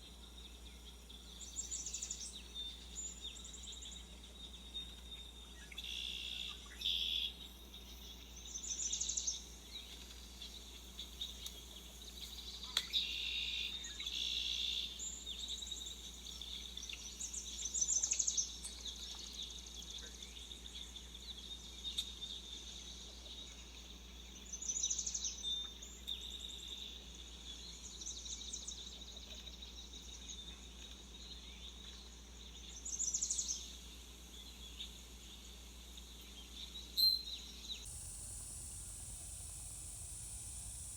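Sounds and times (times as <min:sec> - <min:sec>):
birds chirping: 0:37.8 - 0:40.9.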